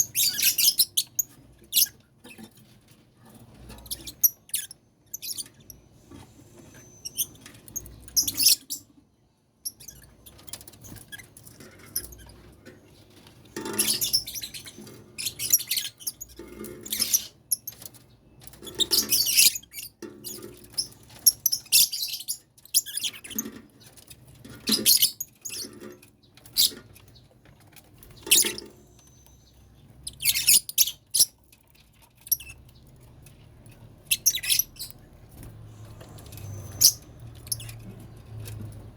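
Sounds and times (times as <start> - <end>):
lovebirds chirping and squeaking: 0.0 - 38.9.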